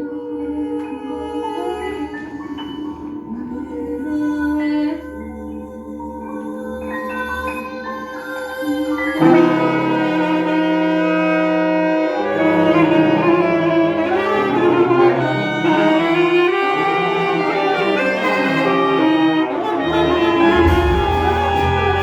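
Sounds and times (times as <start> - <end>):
bowed strings: 12.4 - 22.0
deep low note: 20.2 - 22.0.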